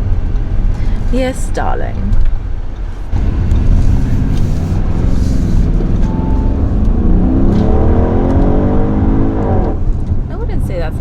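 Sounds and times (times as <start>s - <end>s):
car engine accelerating: 3.0s - 10.3s.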